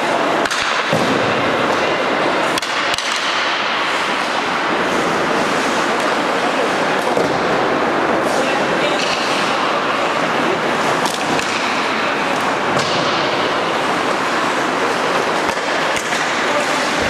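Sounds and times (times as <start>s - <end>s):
skates scraping on ice: 0.0s - 17.0s
sticks and puck clicking: 2.5s - 3.5s, 11.0s - 13.1s.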